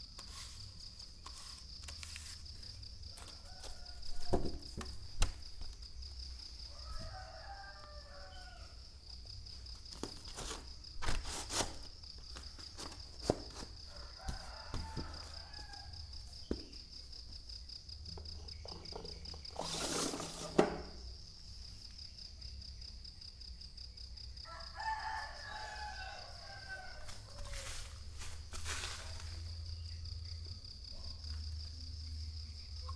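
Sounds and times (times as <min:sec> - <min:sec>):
rooster crowing: 0:03.1 - 0:04.6, 0:06.6 - 0:08.9, 0:13.8 - 0:16.2, 0:24.4 - 0:29.3.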